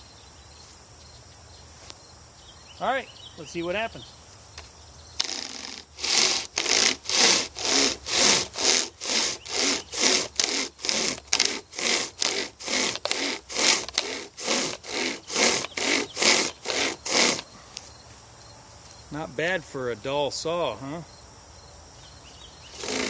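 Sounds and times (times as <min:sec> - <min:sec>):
saw rasping through log: 0:05.2 - 0:17.5, 0:22.8 - 0:23.0.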